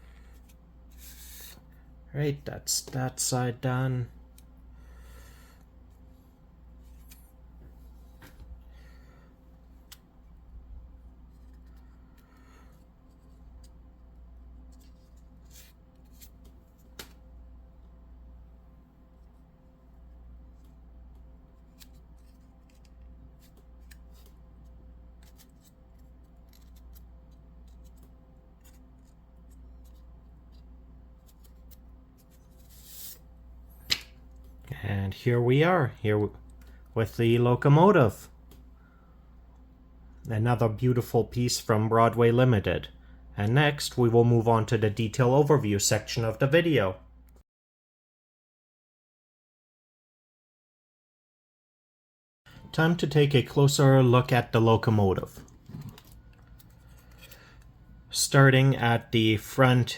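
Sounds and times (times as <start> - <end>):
steady low hum: 0.0 - 47.4.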